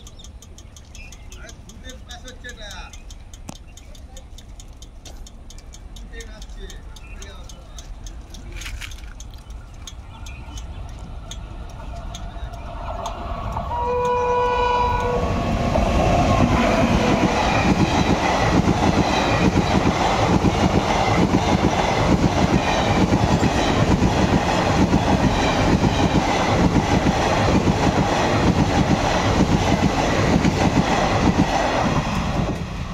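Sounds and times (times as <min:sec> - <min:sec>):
train horn: 0:13.7 - 0:15.4
train wheels clattering over rail joints: 0:15.0 - 0:32.7.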